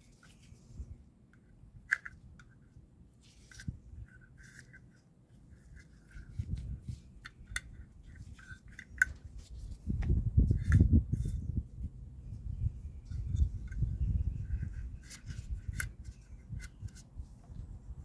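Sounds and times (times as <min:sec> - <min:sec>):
low rumbling handling noise: 0:05.5 - 0:18.0.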